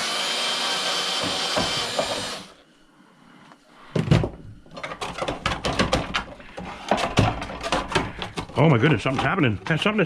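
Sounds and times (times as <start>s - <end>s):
power drill backing out screw: 0.0s - 2.5s.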